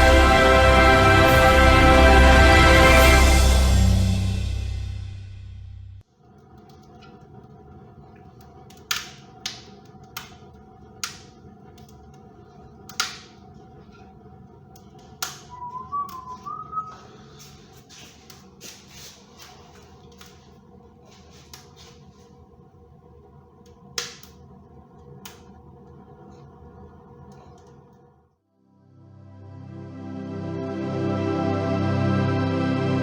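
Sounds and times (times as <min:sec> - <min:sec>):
wood fire crackling: 0:06.2 - 0:28.2
warbling whistle: 0:15.5 - 0:17.4.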